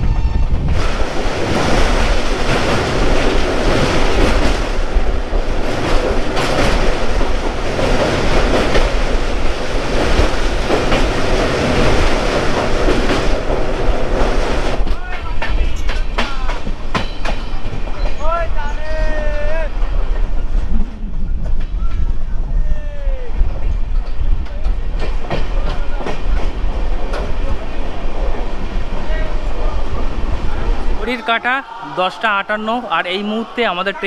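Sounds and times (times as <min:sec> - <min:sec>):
train rumbling: 0:00.0 - 0:34.0
wheels clattering over rail joints: 0:00.7 - 0:18.5.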